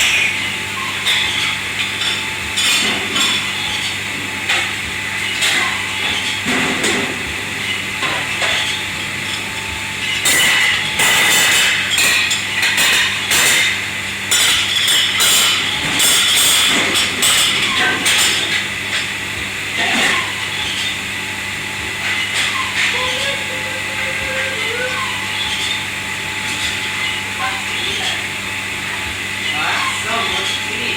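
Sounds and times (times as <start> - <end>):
steady machine hum: 0.0 - 30.9
dishes and pots clattering: 8.0 - 9.4, 10.1 - 19.1, 19.8 - 21.0.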